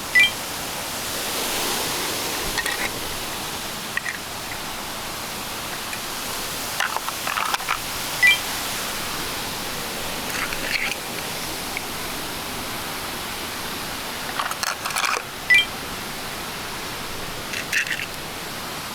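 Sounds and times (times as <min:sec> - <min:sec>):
steady hiss: 0:00.0 - 0:18.9
short high beeps: 0:00.1 - 0:00.4, 0:08.2 - 0:08.4, 0:15.5 - 0:15.7
small clicks and clatter: 0:04.0 - 0:04.7, 0:06.7 - 0:07.9, 0:10.2 - 0:11.9, 0:14.3 - 0:15.3, 0:17.5 - 0:18.2.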